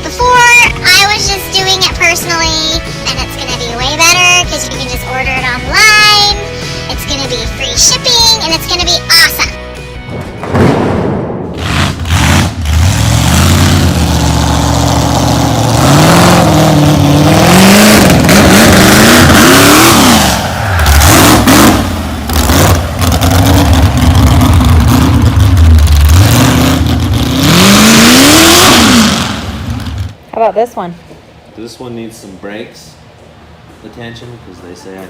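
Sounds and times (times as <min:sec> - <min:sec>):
car engine revving: 0:11.5 - 0:30.2.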